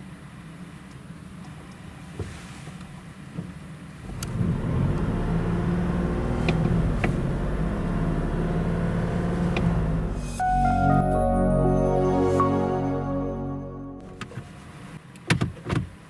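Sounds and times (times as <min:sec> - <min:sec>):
car engine starting and running: 0:03.1 - 0:11.6, 0:12.4 - 0:16.0.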